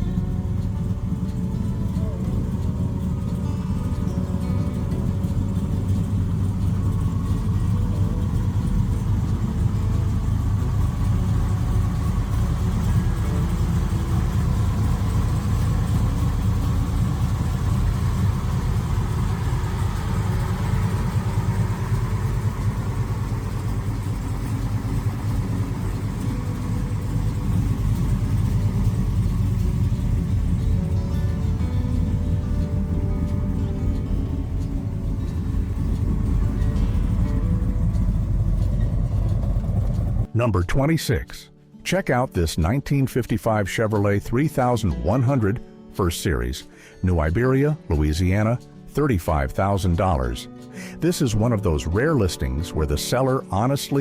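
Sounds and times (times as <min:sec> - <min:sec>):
car engine idling: 0:00.0 - 0:40.5.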